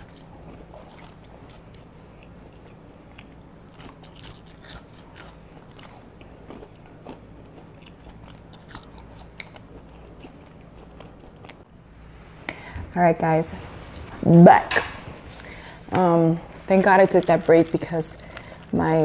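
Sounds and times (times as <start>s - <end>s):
chewing french fries: 0.0s - 11.7s, 16.8s - 19.0s
faint low hum: 0.0s - 19.0s.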